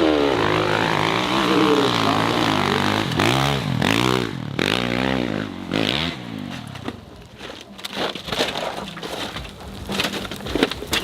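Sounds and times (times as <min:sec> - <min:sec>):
dirt bike engine revving: 0:00.0 - 0:06.8.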